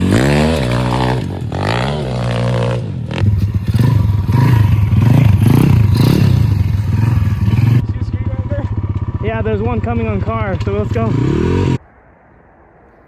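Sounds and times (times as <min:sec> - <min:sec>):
small motorbike engine revving: 0:00.0 - 0:07.9.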